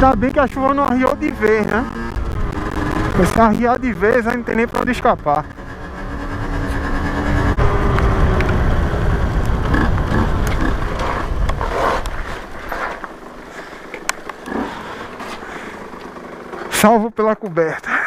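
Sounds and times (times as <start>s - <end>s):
wind on helmet microphone: 0.0s - 4.0s, 5.2s - 12.6s
sharp ticks: 0.0s - 5.7s
motorcycle engine rumble: 0.0s - 18.0s.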